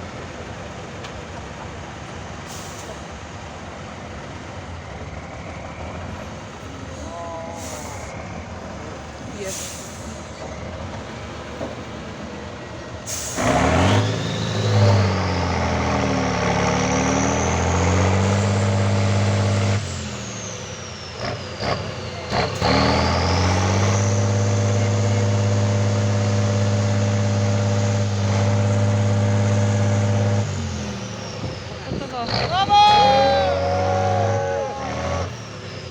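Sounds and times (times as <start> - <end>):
high engine whine: 4.6 - 35.9
truck engine revving hard: 13.0 - 35.9.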